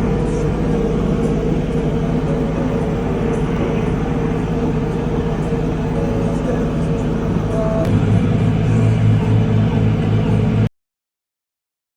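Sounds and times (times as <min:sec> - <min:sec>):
tractor diesel engine running: 0:00.0 - 0:10.7.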